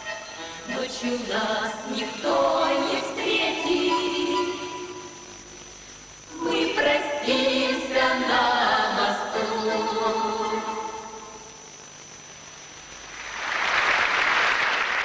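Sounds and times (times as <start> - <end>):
women singing in harmony: 0.5 - 5.1, 6.3 - 11.3.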